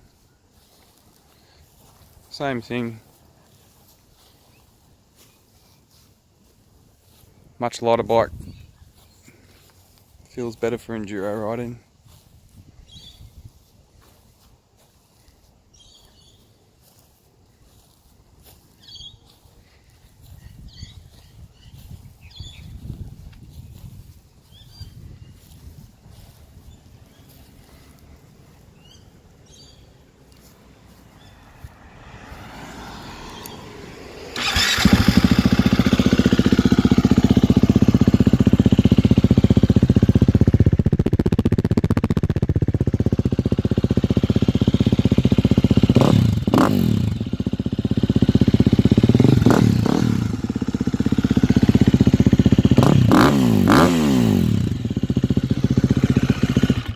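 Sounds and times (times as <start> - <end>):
motorcycle engine idling: 25.4 - 56.9
engine revving blips: 31.2 - 56.9.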